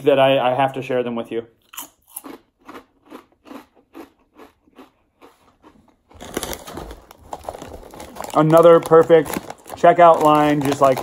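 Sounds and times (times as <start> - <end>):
chips being chewed: 1.7 - 11.0
foil bag crinkling: 6.1 - 11.0.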